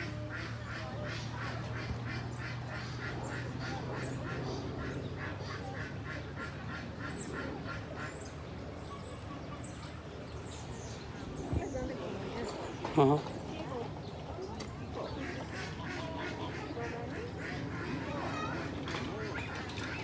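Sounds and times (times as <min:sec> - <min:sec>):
ducks quacking: 0:00.0 - 0:08.7, 0:15.0 - 0:20.0.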